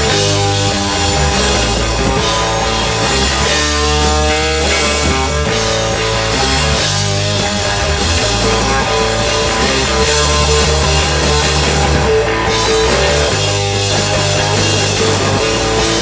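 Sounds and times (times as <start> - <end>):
guitar chords: 0.0 - 16.0
rock band playing live: 0.0 - 16.0
steady bass line: 0.0 - 16.0.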